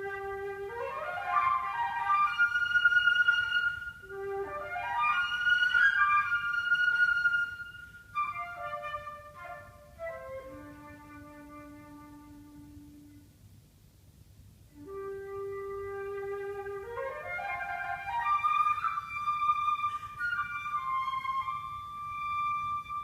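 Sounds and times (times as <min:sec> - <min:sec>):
solo flute playing: 0:00.0 - 0:13.4, 0:14.7 - 0:23.0.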